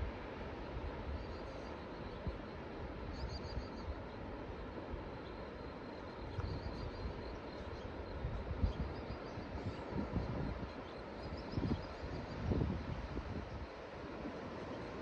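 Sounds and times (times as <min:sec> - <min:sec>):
wind gusting on microphone: 0:08.1 - 0:14.6.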